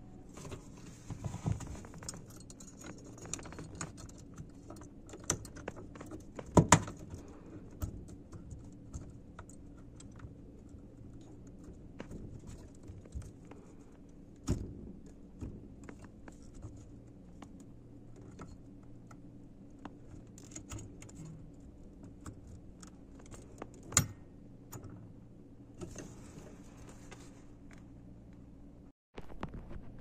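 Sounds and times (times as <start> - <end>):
small tools clicking and clattering: 1.3 - 13.8.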